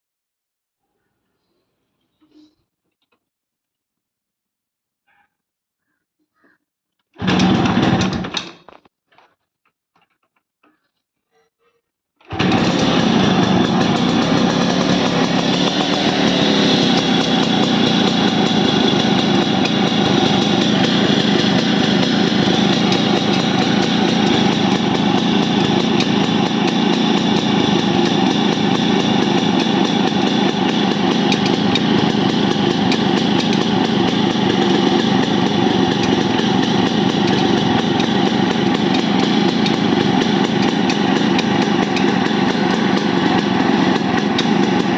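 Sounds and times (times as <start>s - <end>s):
motorcycle engine idling: 12.4s - 44.9s.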